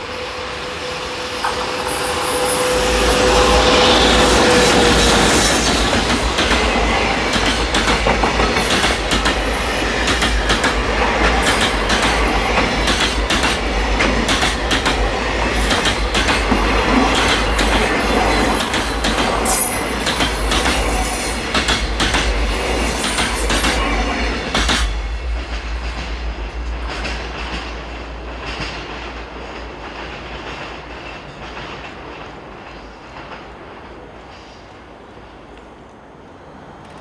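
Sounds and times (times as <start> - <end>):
steel wheels rumbling on rail: 0.0 - 37.0
high-pitched wheel squeals: 0.6 - 6.2, 15.5 - 21.6, 22.4 - 24.0.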